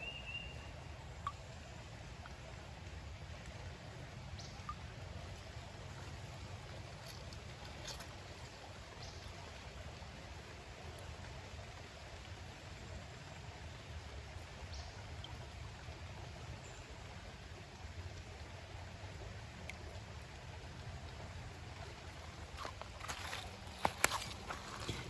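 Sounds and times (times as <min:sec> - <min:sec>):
creek water rushing: 0:00.0 - 0:25.0.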